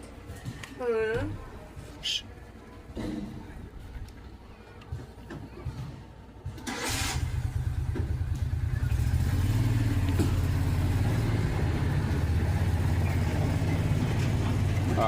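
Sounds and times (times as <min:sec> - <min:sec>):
vehicle engine running: 0:06.8 - 0:15.0.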